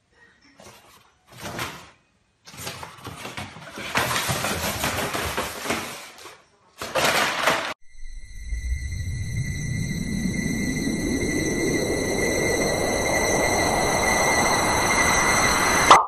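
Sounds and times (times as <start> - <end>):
paper bag rustling on wooden floor: 0.6 - 7.8.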